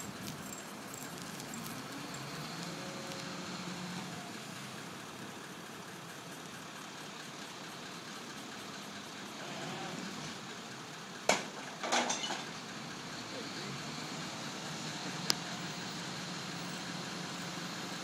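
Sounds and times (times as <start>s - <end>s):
truck engine running: 0.0s - 18.0s
small clatter: 11.3s - 12.6s.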